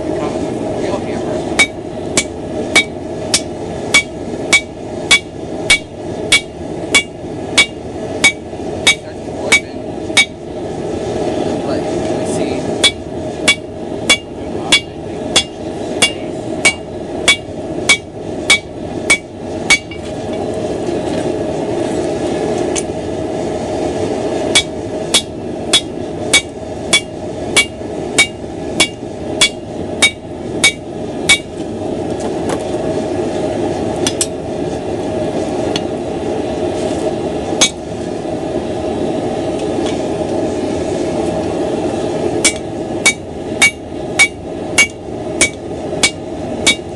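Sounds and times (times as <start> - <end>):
forge rushing noise: 0.0 - 46.9
hammer striking steel on anvil: 1.6 - 10.4, 12.8 - 20.1, 24.5 - 31.5, 37.6 - 37.8, 42.4 - 46.9.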